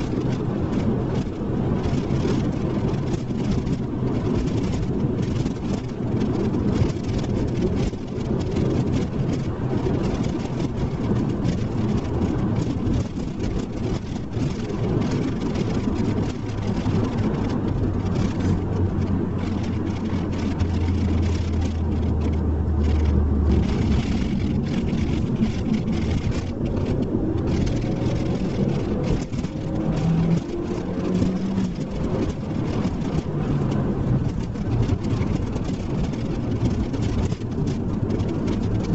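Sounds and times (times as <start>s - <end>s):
car engine running: 0.0s - 38.9s
road noise: 0.0s - 38.9s
deep drone: 18.6s - 32.0s.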